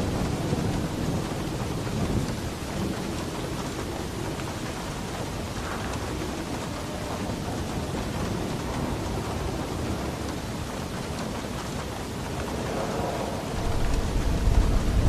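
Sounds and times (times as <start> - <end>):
heavy rain on a roof: 0.0 - 15.0
low thunder rumble: 0.0 - 15.0.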